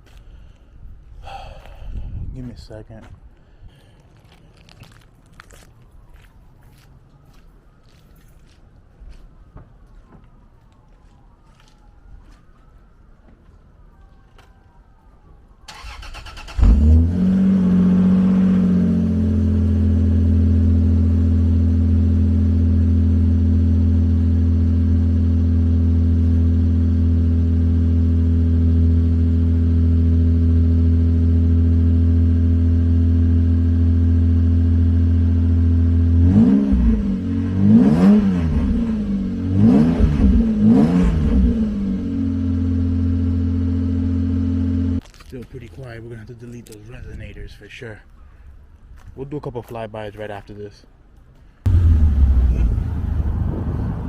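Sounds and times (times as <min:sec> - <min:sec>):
car engine idling and revving: 0:15.8 - 0:45.0, 0:51.7 - 0:54.0.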